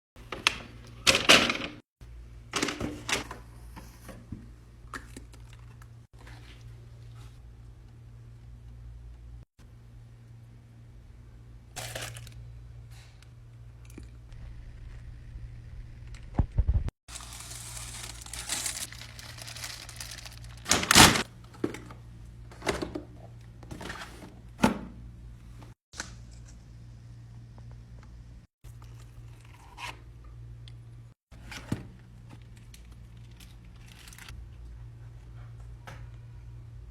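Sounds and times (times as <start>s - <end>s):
paper packaging rustling and tearing: 11.8s - 12.4s, 17.1s - 21.3s.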